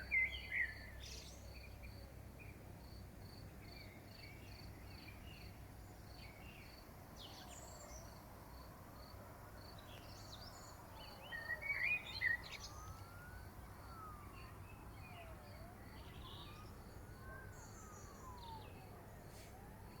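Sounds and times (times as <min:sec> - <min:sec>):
birds singing and chirping: 0:10.2 - 0:13.0
distant siren wailing: 0:10.2 - 0:20.0.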